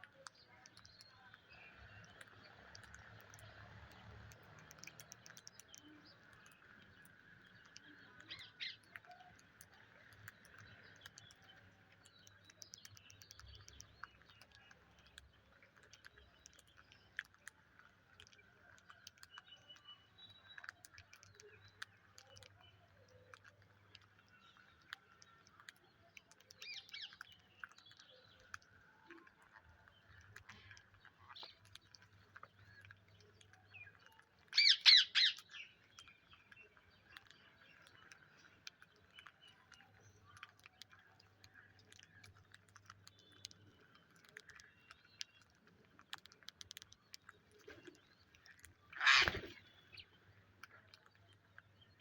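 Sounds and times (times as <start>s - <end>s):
scattered clicks: 0.0s - 50.0s
parrots chirping: 34.6s - 35.7s, 48.9s - 49.7s.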